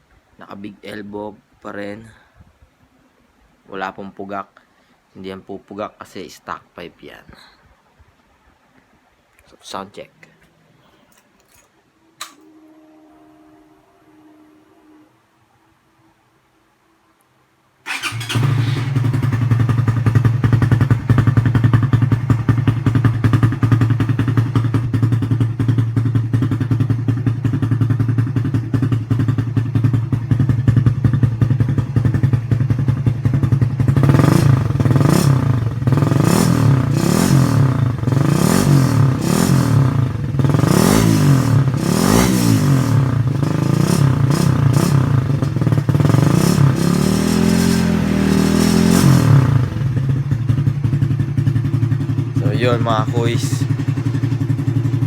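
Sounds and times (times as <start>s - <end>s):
motorcycle engine idling and revving: 17.9s - 55.0s.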